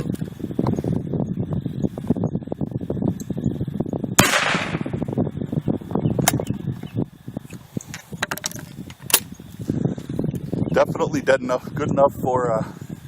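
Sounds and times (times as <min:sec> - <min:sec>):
shotgun blast: 0:04.2 - 0:05.0
sharp clicks and knocks: 0:07.9 - 0:09.3.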